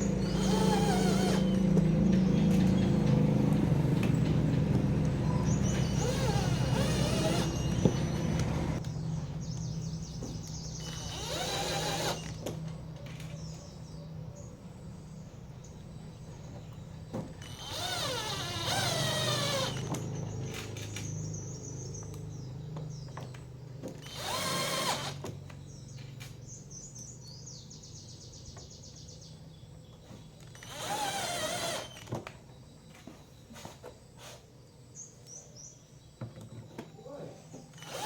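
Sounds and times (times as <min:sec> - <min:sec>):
power drill running: 0:00.0 - 0:08.8, 0:10.8 - 0:12.4, 0:17.4 - 0:20.2, 0:24.0 - 0:25.2, 0:30.5 - 0:32.1, 0:37.7 - 0:38.0.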